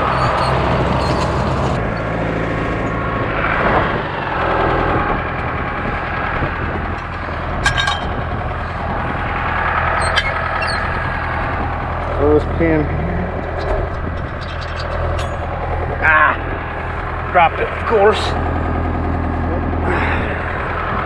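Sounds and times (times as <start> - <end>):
tractor diesel engine running: 0.0 - 21.0
short metallic clatter: 7.0 - 9.0, 13.3 - 17.3.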